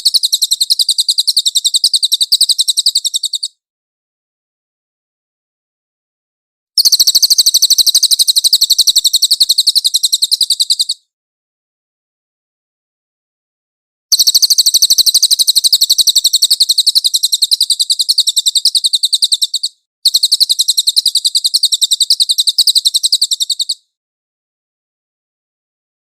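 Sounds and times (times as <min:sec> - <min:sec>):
bird singing high trills: 0:00.0 - 0:03.6, 0:06.8 - 0:11.0, 0:14.1 - 0:23.8.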